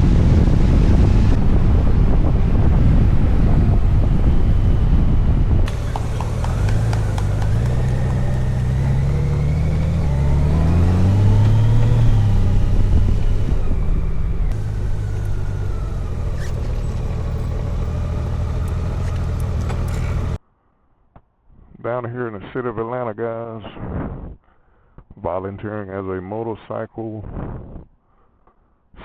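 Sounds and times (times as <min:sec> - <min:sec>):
motorcycle engine accelerating: 0:00.0 - 0:20.4.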